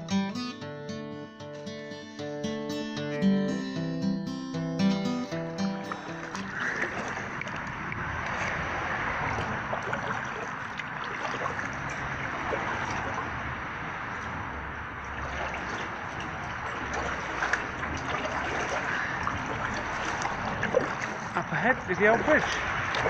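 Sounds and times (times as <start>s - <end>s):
kayak paddle splashing water: 5.5s - 23.0s
small water drips: 5.7s - 23.0s.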